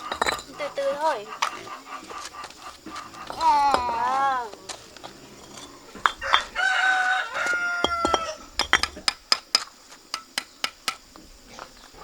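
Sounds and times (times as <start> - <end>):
rooster crowing: 1.0 - 8.6.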